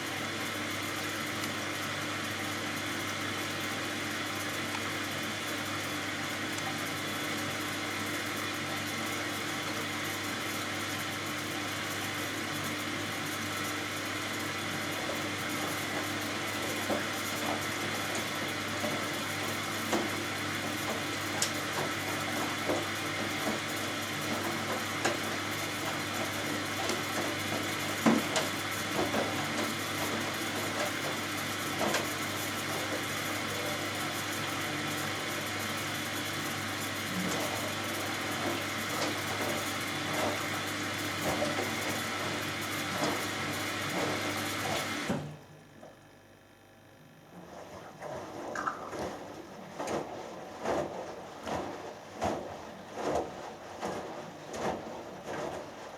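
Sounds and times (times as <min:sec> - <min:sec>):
washing machine motor humming: 0:00.0 - 0:55.9
laundry knocking and splashing: 0:47.6 - 0:55.9.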